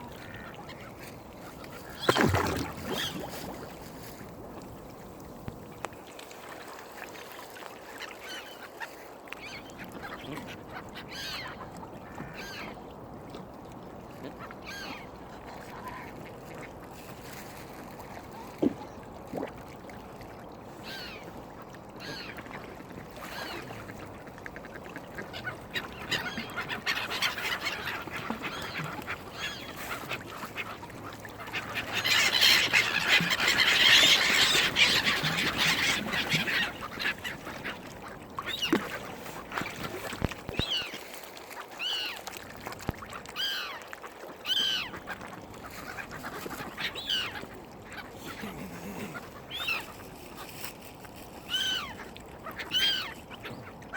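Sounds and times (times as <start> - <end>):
gulls calling: 25.4 - 39.0
ducks quacking: 31.4 - 37.8, 48.0 - 50.0.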